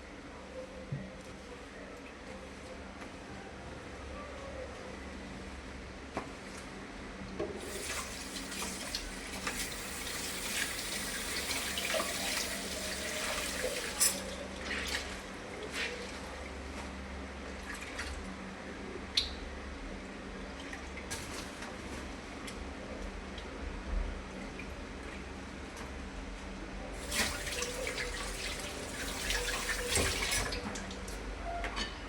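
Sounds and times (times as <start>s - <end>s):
tap water running into sink: 7.6s - 14.3s, 27.0s - 30.8s.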